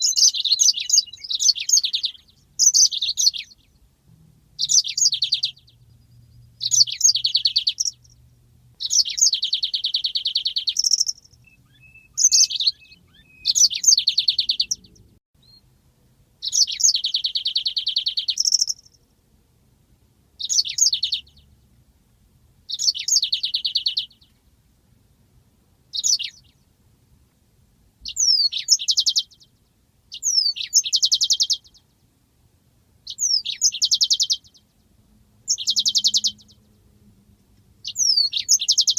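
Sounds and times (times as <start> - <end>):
canary singing: 0.0 - 3.9, 4.6 - 8.2, 8.8 - 15.6, 16.4 - 19.0, 20.4 - 21.7, 22.7 - 24.4, 25.9 - 26.6, 28.0 - 32.1, 33.0 - 36.9, 37.8 - 38.9.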